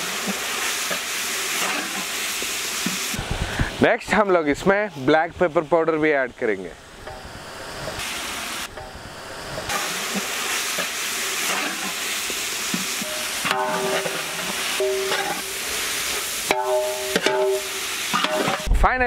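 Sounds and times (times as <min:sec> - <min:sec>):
vegetables sizzling in oil: 0:00.0 - 0:03.4, 0:07.2 - 0:18.7
ringing tone: 0:13.0 - 0:14.2, 0:14.8 - 0:15.6
metal ladle scraping pot: 0:13.0 - 0:18.7.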